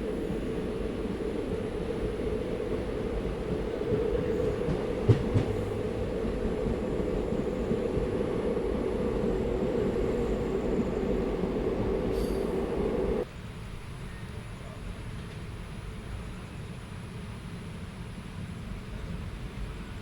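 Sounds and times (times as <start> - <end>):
constant hum: 0.0 - 13.2
train rumbling along track: 0.0 - 20.0
sharp track clacks: 3.2 - 13.2.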